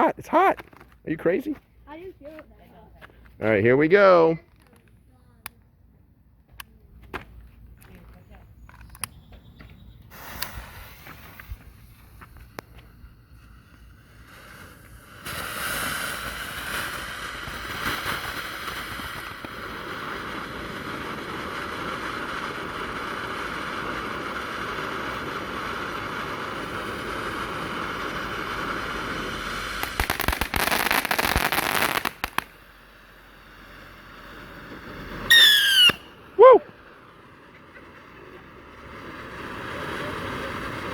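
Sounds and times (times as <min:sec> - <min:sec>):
firework fountain hissing: 0:09.8 - 0:40.9
firework crackling: 0:10.0 - 0:40.9.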